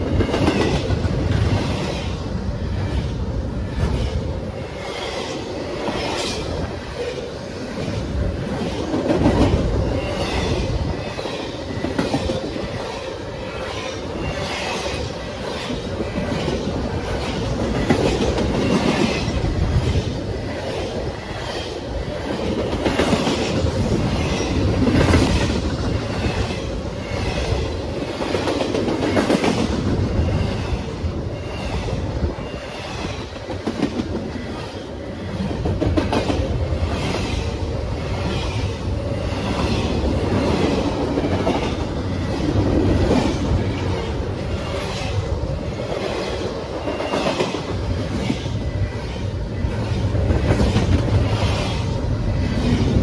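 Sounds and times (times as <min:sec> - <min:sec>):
train wheels clacking over rail joints: 0:00.0 - 0:02.2
train rumble: 0:00.0 - 0:53.0.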